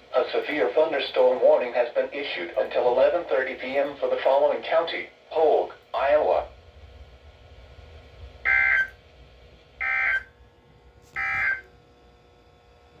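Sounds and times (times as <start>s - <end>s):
faint low hum: 0.0s - 13.0s
buzzing digital tone bursts: 8.4s - 9.0s, 9.8s - 10.3s, 11.2s - 11.7s.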